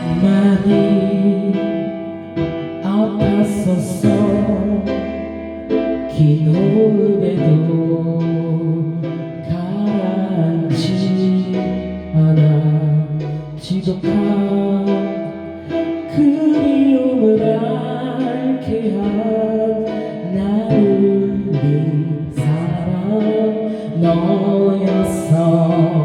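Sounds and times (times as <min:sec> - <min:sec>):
instrumental backing track: 0:00.0 - 0:26.0.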